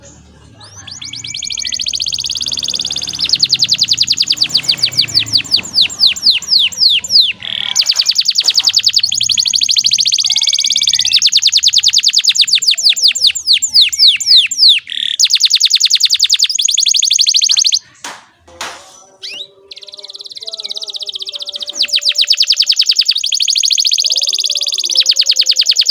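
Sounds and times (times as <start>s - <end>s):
canary singing trills: 0.0s - 25.9s.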